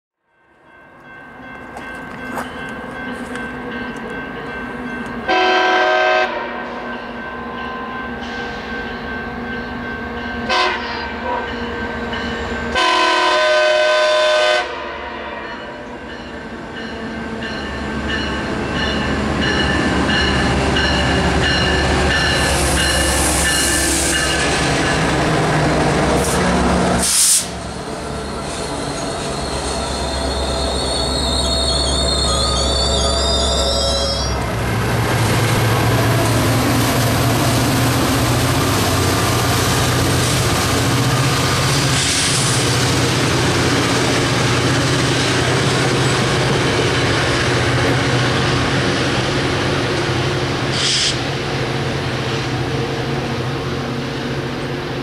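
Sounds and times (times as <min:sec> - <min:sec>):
train horn blasts: 0:05.2 - 0:07.0, 0:10.4 - 0:11.7, 0:12.7 - 0:15.9
train rumble: 0:15.8 - 0:55.0
hiss: 0:26.2 - 0:27.6, 0:50.7 - 0:51.2.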